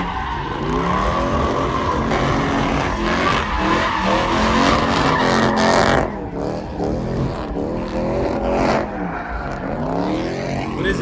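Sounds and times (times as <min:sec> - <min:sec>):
tyres squealing: 0:00.0 - 0:06.2
vehicle engine revving: 0:00.0 - 0:11.0.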